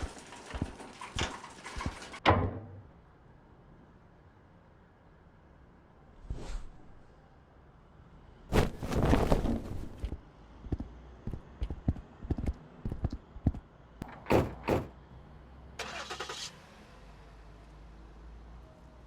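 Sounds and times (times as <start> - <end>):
clatter: 0.0 - 2.2.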